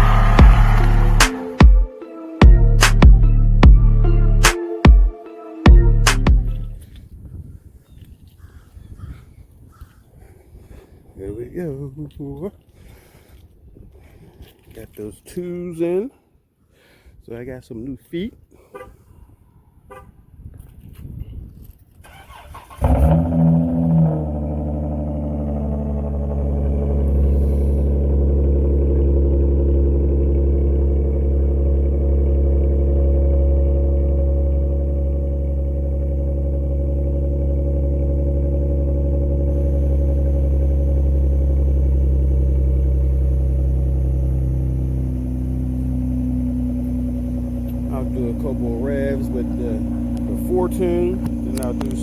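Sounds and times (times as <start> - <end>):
car engine idling: 0.0 - 4.6, 5.7 - 7.0, 22.1 - 52.0
starter cranking: 22.1 - 29.8.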